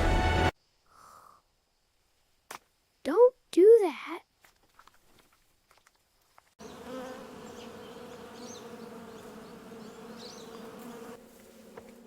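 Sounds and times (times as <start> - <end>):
bees buzzing: 6.6 - 12.0.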